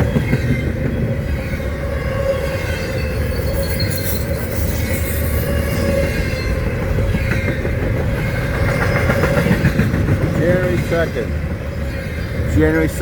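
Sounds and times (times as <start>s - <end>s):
freight train wheels rumbling: 0.0s - 13.0s
wheels clattering over rail joints: 0.0s - 13.0s
faint wheel squeal: 2.2s - 6.6s.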